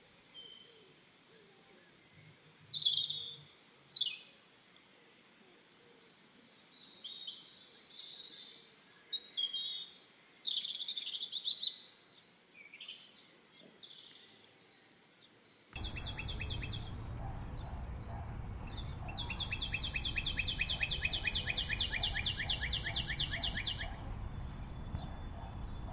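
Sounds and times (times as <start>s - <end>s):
steady low background noise: 0.0s - 25.9s
birds chirping and calling: 15.8s - 25.9s.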